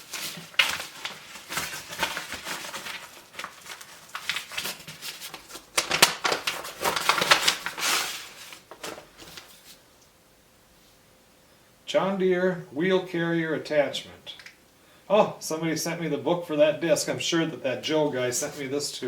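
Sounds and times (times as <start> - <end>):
paper and packaging rustling: 0.0 - 9.8
handling noises: 0.0 - 9.9.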